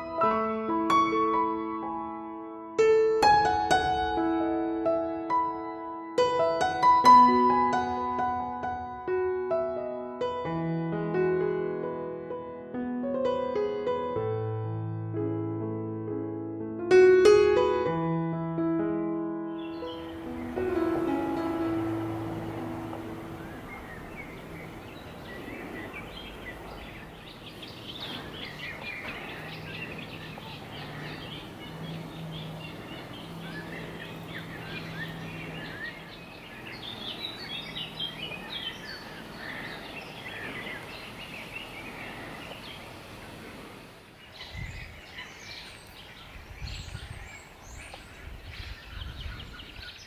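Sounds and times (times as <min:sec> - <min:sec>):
outdoor ambience: 0:19.6 - 0:50.0
small birds chirping: 0:19.6 - 0:50.0
low rumbling bumps: 0:19.9 - 0:42.9.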